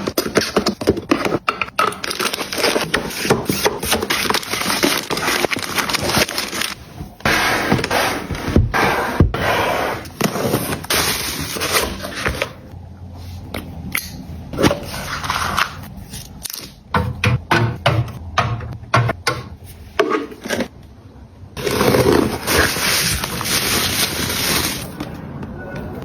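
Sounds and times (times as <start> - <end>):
packaging rustling: 0.0 - 8.4, 21.6 - 25.1.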